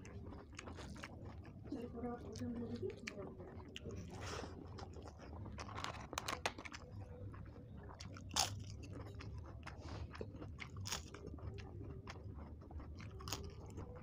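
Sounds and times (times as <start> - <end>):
wet chewing: 0.0 - 14.0
crisp papad crunching: 4.8 - 7.1.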